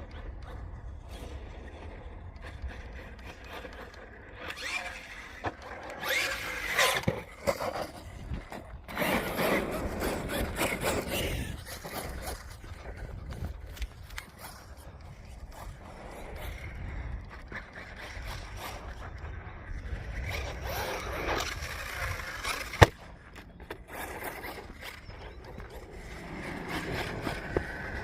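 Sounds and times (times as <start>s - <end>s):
tyres scraping on dirt: 2.9s - 19.0s, 20.0s - 28.0s
wind on microphone: 6.0s - 23.2s.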